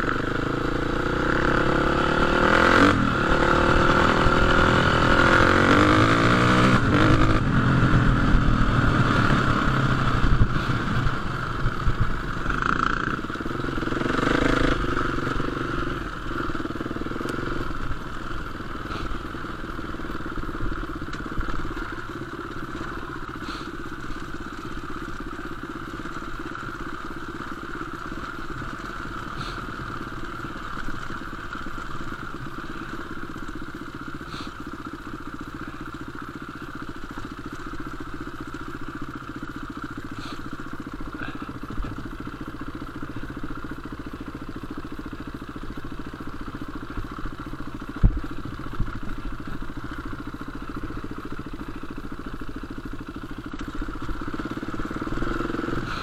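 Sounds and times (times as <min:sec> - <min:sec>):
motorcycle engine running: 0:00.0 - 0:56.0
faint ticks: 0:20.8 - 0:24.4.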